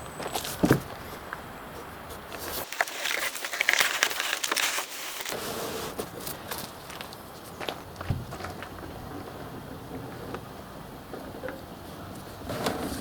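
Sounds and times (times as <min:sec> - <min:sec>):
material crinkling and rustling: 0:02.1 - 0:05.4.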